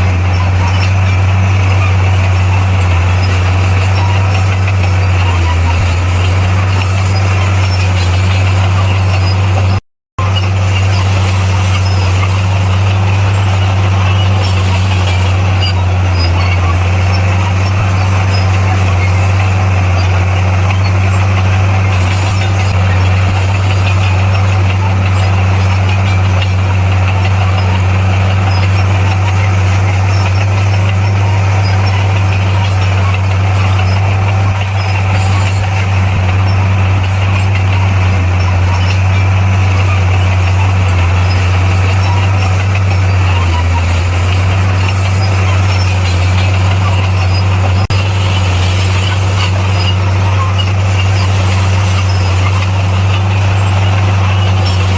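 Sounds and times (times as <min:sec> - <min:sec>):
bulldozer diesel engine humming: 0:00.0 - 0:54.9.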